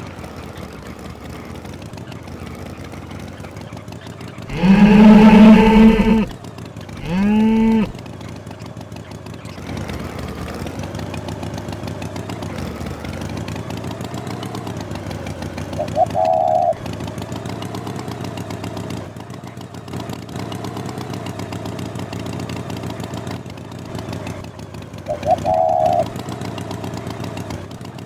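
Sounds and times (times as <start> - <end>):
cow mooing: 4.5 - 6.3, 7.0 - 8.0.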